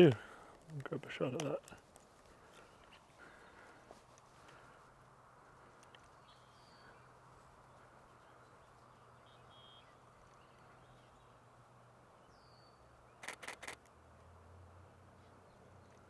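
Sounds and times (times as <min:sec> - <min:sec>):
faint bird call: 0:09.2 - 0:11.1
camera shutter firing: 0:13.2 - 0:13.8.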